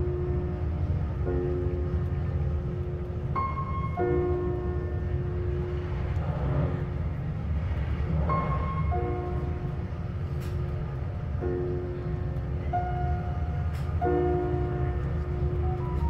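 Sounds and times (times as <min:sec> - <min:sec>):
train rumbling: 0:00.0 - 0:16.0
soft background music: 0:03.2 - 0:05.8, 0:11.4 - 0:16.0.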